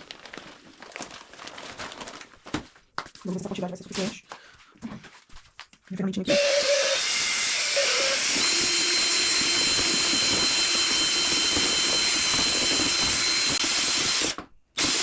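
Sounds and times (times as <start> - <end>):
electric drill mixing compound: 6.3 - 15.0.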